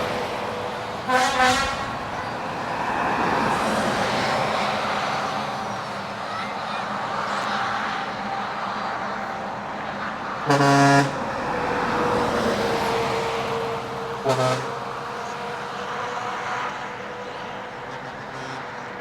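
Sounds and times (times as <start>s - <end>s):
truck engines running: 0.0s - 19.0s
truck horn blasts: 1.0s - 2.1s, 10.4s - 11.5s, 14.1s - 15.3s, 17.9s - 19.0s.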